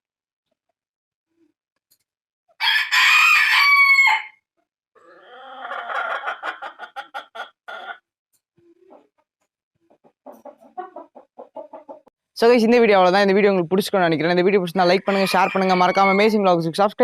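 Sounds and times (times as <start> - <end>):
rooster crowing: 2.6 - 4.4
rapid clucking: 8.7 - 12.1.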